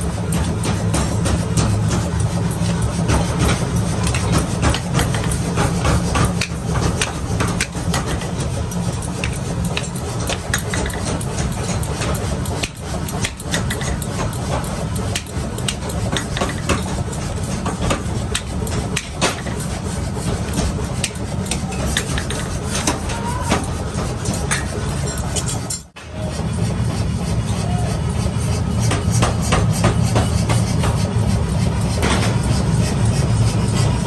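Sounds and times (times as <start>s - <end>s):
sharp metallic knocks and clicks: 0.0s - 26.0s, 28.8s - 31.1s.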